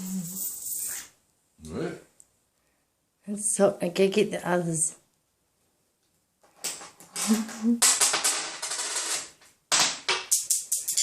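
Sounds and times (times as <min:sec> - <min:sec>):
coins clattering on hard surface: 0:06.6 - 0:11.0.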